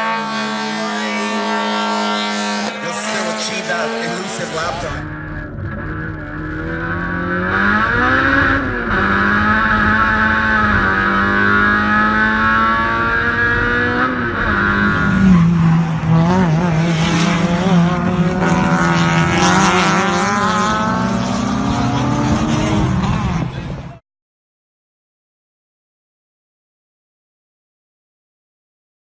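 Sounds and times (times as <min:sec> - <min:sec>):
race car engine: 0:00.0 - 0:24.0.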